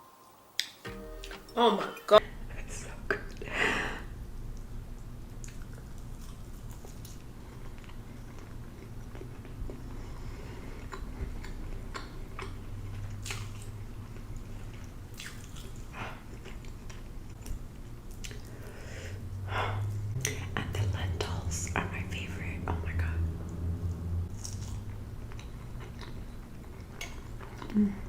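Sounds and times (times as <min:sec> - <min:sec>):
low steady hum: 0:00.0 - 0:28.0
person chewing food: 0:05.3 - 0:18.8, 0:24.3 - 0:28.0.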